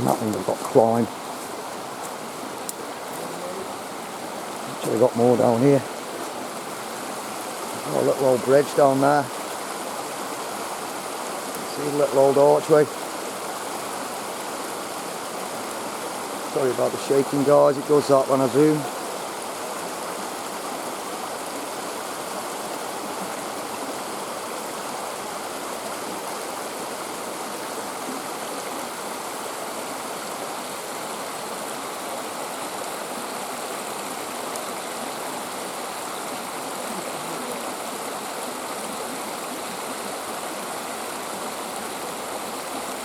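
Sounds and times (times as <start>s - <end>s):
stream rushing over rocks: 0.0s - 43.0s.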